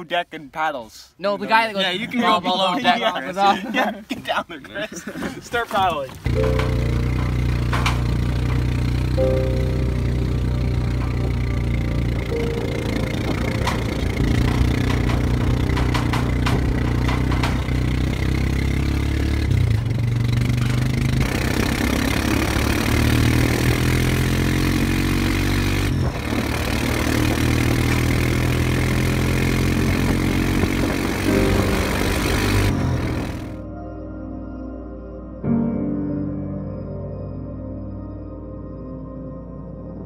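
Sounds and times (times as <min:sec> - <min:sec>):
engine idling and revving: 0:06.2 - 0:33.6
sharp knocks: 0:06.3 - 0:24.4.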